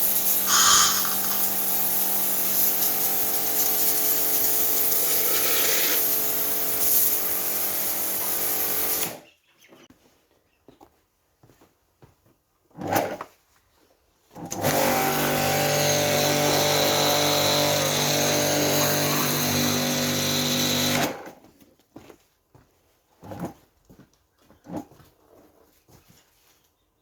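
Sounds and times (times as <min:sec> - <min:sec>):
pressure washer motor and pump: 0:00.0 - 0:09.2, 0:14.4 - 0:21.3.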